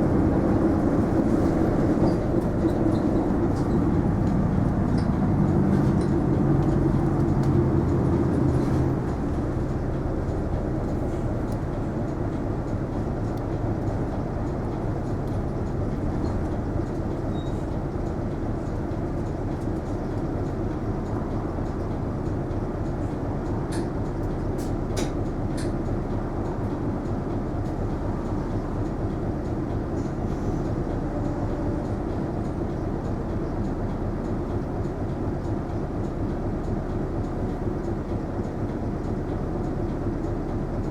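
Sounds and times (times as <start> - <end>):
road noise: 0.0 - 30.4
bus engine running: 0.0 - 40.9.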